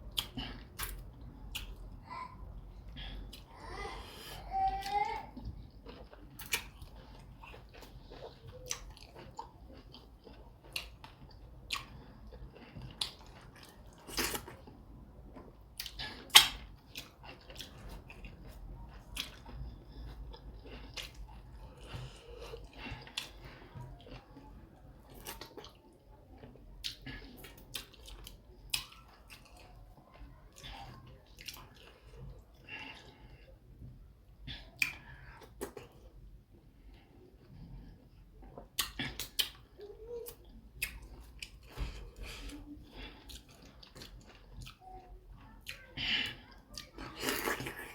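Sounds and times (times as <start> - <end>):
person chewing food: 0.0 - 47.9.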